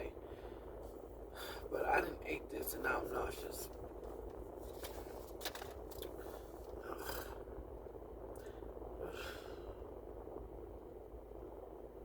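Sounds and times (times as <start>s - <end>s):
person breathing: 0.2s - 1.7s, 6.1s - 7.4s, 8.4s - 9.9s
soft scraping and clicking: 3.6s - 7.3s.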